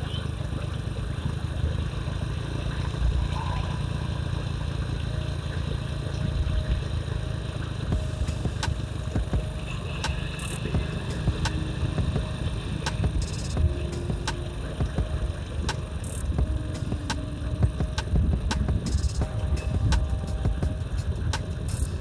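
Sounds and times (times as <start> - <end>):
motorcycle engine rumbling: 0.0 - 22.0.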